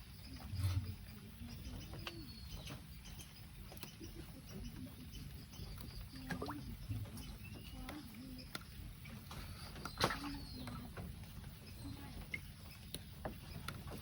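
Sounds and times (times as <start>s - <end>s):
drips: 3.2s - 14.0s.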